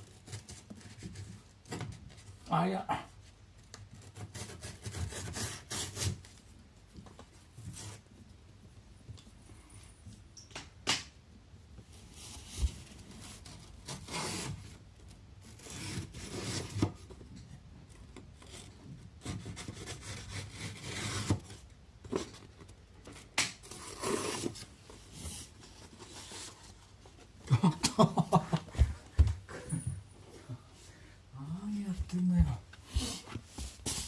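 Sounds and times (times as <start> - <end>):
rubbing and scraping on wood: 3.2 - 8.3, 11.9 - 27.4, 31.9 - 34.0.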